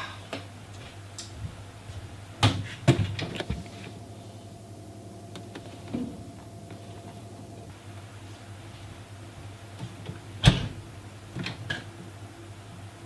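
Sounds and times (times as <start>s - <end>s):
low steady hum: 0.0s - 13.0s
faint steady tone: 3.6s - 7.7s.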